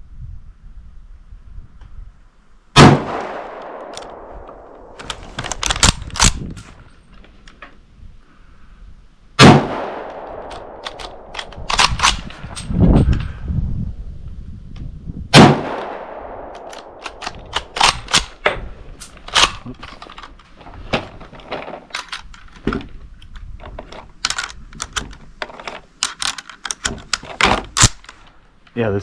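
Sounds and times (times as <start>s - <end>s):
rifle shots ringing out: 2.8s - 5.1s, 9.4s - 12.3s, 15.3s - 18.4s
rifle bolt metallic clacks: 3.1s - 7.7s, 9.8s - 13.3s, 15.7s - 28.3s.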